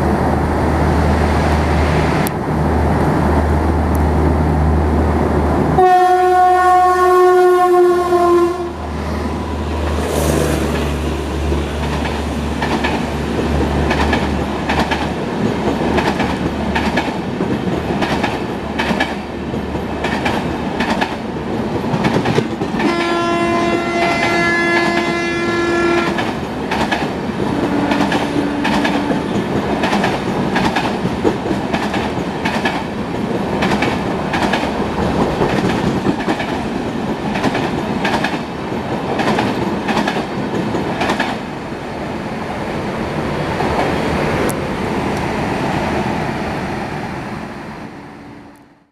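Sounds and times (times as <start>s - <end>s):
train horn: 5.8s - 9.0s, 22.8s - 26.3s, 27.5s - 29.4s
clickety-clack of train wheels: 10.5s - 41.6s.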